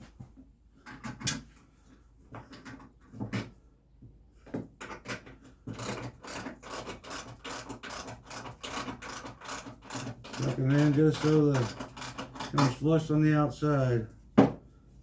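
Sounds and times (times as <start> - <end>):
rattling wooden strokes: 4.8 - 13.2.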